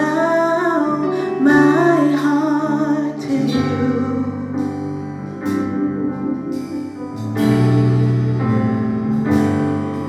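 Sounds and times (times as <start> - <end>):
person singing: 0.0 - 5.0
keyboard chords: 0.0 - 10.0
worship band playing: 0.0 - 10.0.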